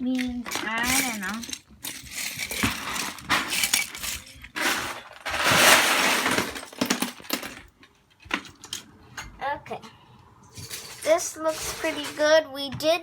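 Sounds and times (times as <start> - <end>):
plastic bricks clattering: 0.1 - 7.7.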